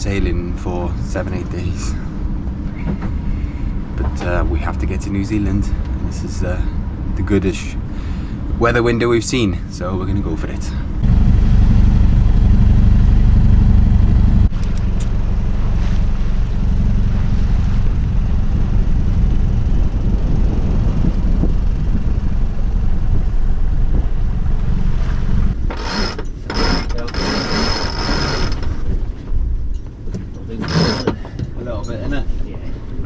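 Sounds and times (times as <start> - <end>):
steady low rumble: 0.0 - 33.0
winch ratcheting with high whine: 25.6 - 31.3.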